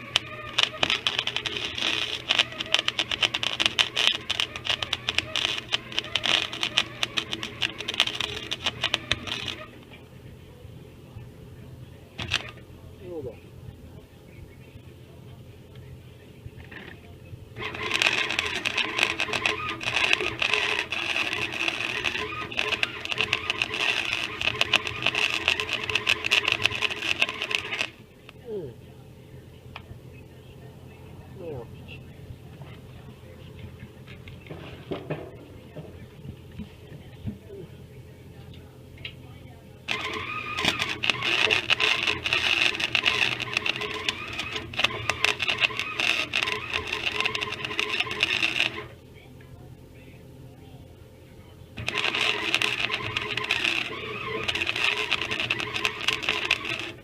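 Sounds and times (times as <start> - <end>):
welder arc crackling and buzzing: 0.0 - 13.4, 16.6 - 28.8, 38.4 - 49.0, 51.8 - 57.0.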